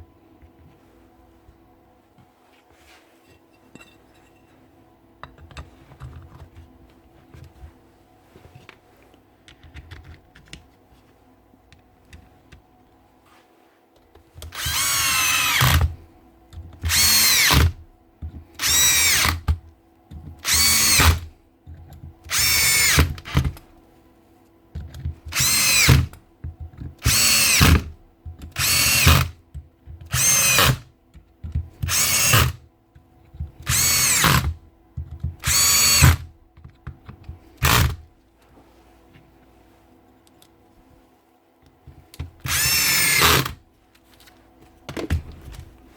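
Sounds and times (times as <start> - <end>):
cordless drill bursts: 14.5 - 16.0, 16.9 - 17.8, 18.6 - 19.5, 20.4 - 21.3, 22.3 - 23.5, 25.3 - 26.1, 27.0 - 27.9, 28.6 - 29.4, 30.1 - 30.8, 31.8 - 32.6, 33.7 - 34.6, 35.4 - 36.3, 37.6 - 38.0, 42.5 - 43.6.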